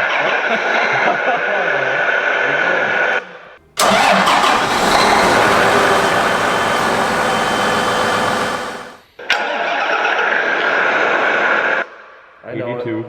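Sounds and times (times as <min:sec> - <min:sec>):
engine sound: 0:03.8 - 0:09.0
tractor diesel engine running: 0:03.8 - 0:09.0.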